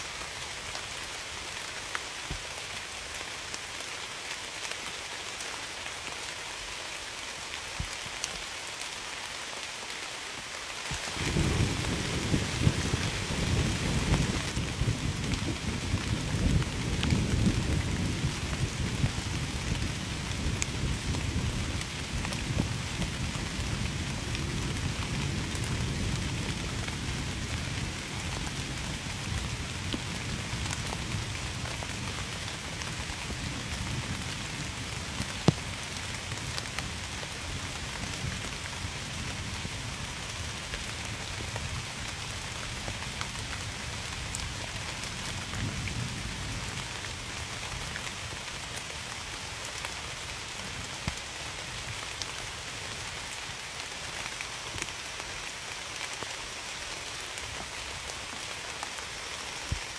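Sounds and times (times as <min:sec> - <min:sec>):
heavy rain falling: 0:00.0 - 0:59.9
low thunder rumble: 0:11.1 - 0:32.0.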